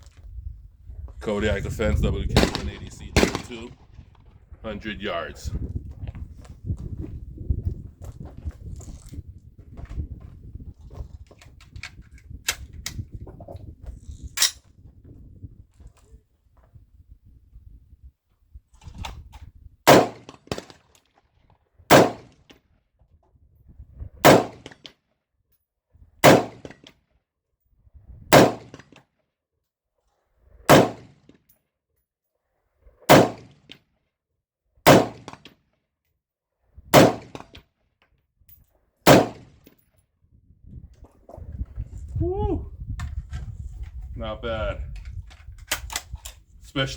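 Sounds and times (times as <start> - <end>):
rifle shots: 2.3 - 3.8, 19.9 - 20.8, 21.9 - 22.3, 24.2 - 24.8, 26.2 - 26.8, 28.3 - 28.8, 30.7 - 31.1, 33.1 - 33.6, 34.9 - 35.5, 36.9 - 37.5, 39.1 - 39.5.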